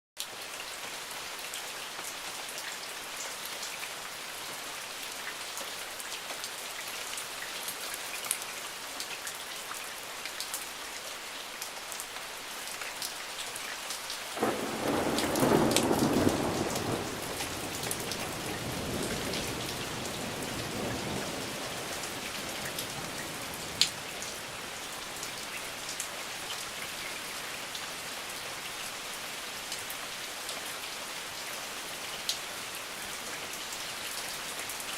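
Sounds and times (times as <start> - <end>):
steady rain falling: 0.2 - 34.9
thunderclap rumbling: 14.4 - 21.6.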